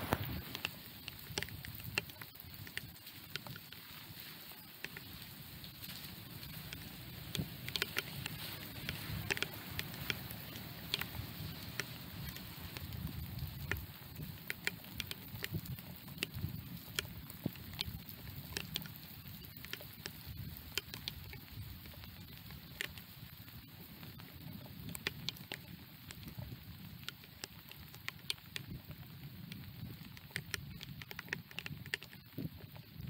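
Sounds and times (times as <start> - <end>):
raindrops ticking on microphone: 0.0 - 33.0
steady low rumble: 5.2 - 18.1.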